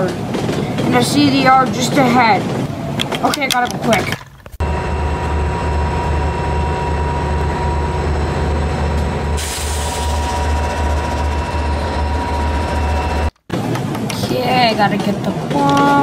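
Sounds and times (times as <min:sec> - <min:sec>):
train rumbling past: 0:00.0 - 0:03.3, 0:04.6 - 0:16.0
thin steady whine: 0:04.6 - 0:13.4
hiss: 0:09.4 - 0:10.3.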